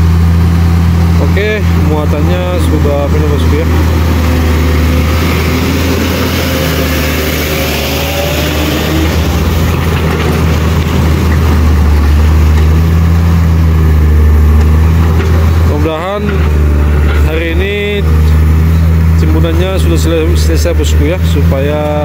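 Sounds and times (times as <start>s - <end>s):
heavy vehicle engine humming: 0.0s - 22.0s.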